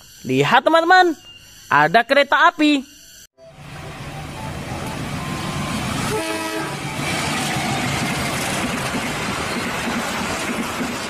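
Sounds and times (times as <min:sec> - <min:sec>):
locomotive engine and wheel rumble: 0:03.4 - 0:11.0
train horn blast: 0:05.4 - 0:07.2.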